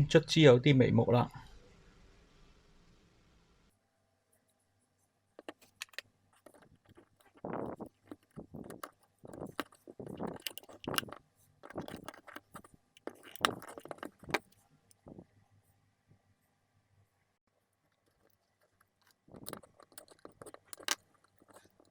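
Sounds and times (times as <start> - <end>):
plastic housing clicking and snapping: 5.4 - 15.0, 19.0 - 21.9.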